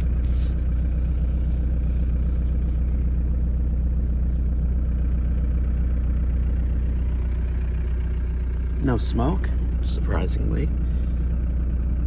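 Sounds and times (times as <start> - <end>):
diesel engine idling roughly: 0.0 - 12.0.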